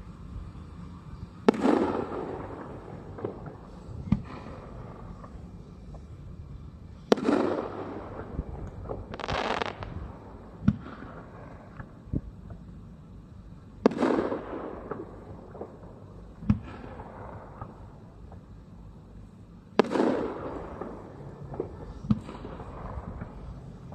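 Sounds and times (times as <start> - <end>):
crackling hiss: 0.0 - 23.9
rumble and crackle: 0.0 - 23.9
fireworks booming: 1.4 - 6.0, 7.0 - 12.2, 13.8 - 18.0, 19.8 - 23.9.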